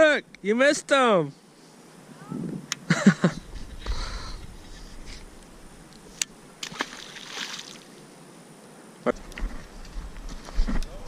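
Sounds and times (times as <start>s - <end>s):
faint river water sloshing: 4.5s - 8.2s.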